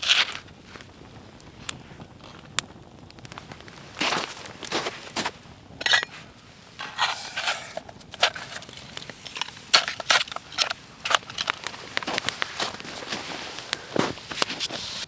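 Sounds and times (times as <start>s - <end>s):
snow crunching: 3.2s - 15.0s.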